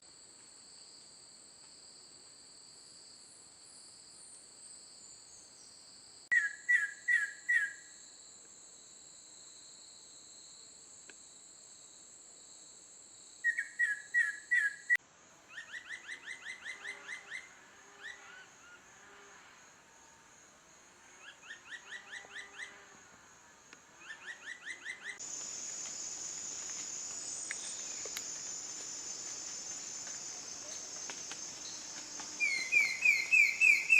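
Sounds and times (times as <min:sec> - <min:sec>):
insects buzzing: 0:00.4 - 0:33.9
bird calling repeated notes: 0:32.4 - 0:33.9.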